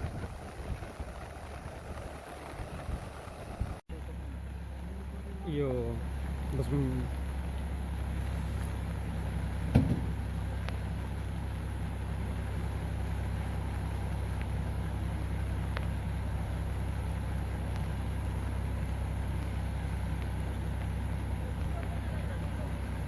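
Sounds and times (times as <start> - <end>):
vehicle engine running: 0.0 - 23.0
sharp knock: 9.7 - 10.2.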